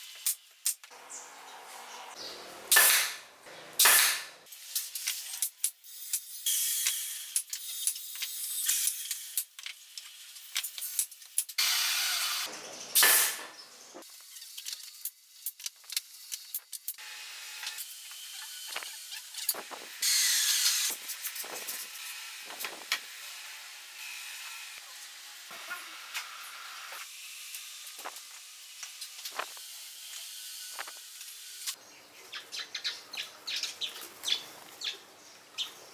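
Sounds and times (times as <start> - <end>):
small birds chirping: 0.9 - 2.7, 31.8 - 35.9.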